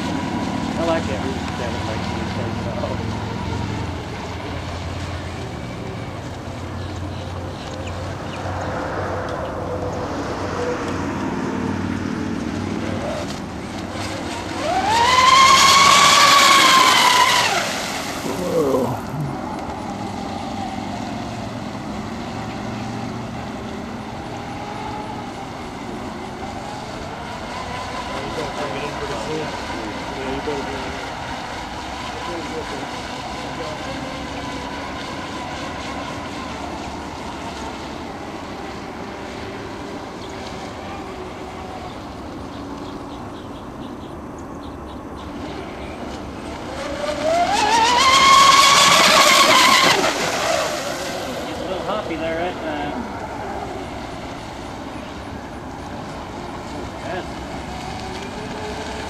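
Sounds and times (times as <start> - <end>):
electric motor whine: 0.0 - 43.0, 45.5 - 59.0
background rush: 0.0 - 59.0.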